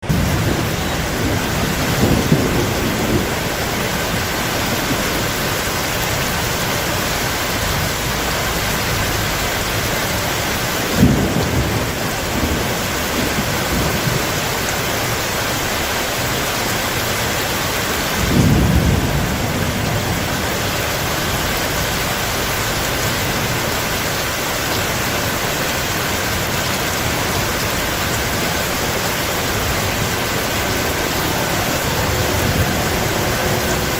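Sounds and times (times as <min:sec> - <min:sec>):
sharp thunder clap: 0:00.0 - 0:05.3, 0:18.2 - 0:20.6
heavy rain falling: 0:00.0 - 0:33.9
thunder rumbling: 0:00.0 - 0:33.9.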